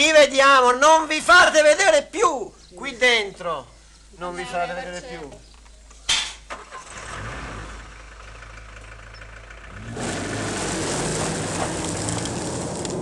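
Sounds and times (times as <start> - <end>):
car engine idling and revving: 6.8 - 13.0.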